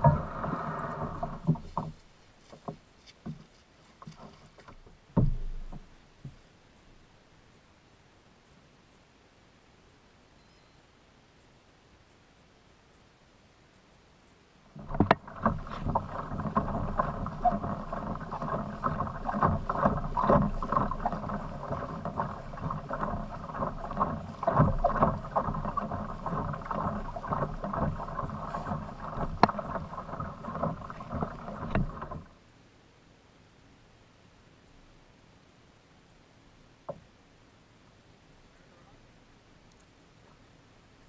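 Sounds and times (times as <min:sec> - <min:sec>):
water splashing against hull: 0:00.0 - 0:06.4, 0:14.7 - 0:32.4
irregular knocks: 0:04.8 - 0:06.4, 0:14.8 - 0:32.3.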